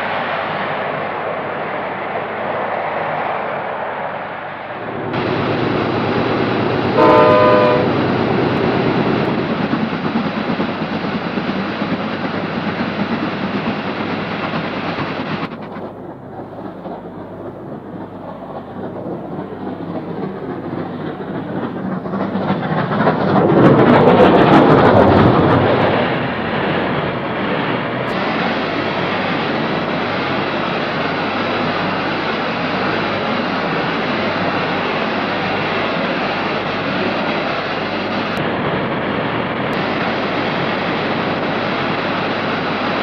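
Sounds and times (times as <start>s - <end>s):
train running on rails: 0.0s - 43.0s
train warning horn blast: 6.8s - 8.3s.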